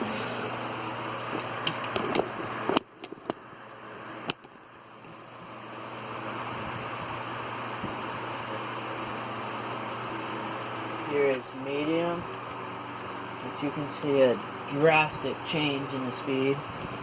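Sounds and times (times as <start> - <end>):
table fan running: 0.0 - 17.0
fan speed switch clicks: 1.4 - 3.4, 11.2 - 11.5.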